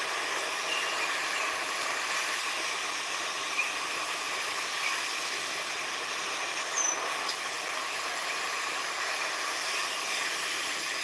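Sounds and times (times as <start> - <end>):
hissing nature ambience: 0.0 - 11.0.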